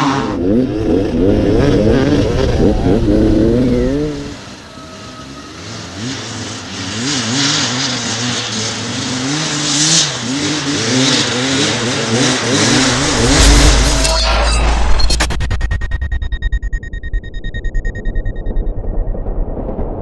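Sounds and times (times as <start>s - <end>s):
dirt bike engine revving: 0.0s - 14.2s.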